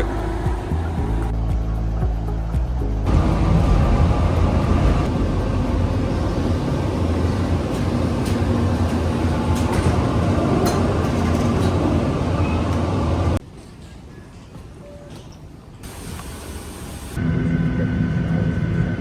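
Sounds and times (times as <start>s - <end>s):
vehicle interior rumble and hiss: 0.0s - 1.3s, 3.1s - 13.4s, 15.8s - 18.5s.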